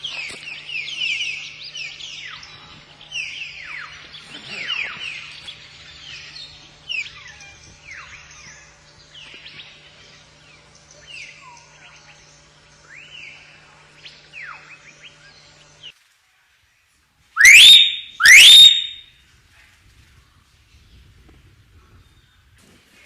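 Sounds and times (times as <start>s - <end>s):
loud rising whistles: 17.4s - 19.0s
myna whistles and chirps: 17.4s - 19.0s.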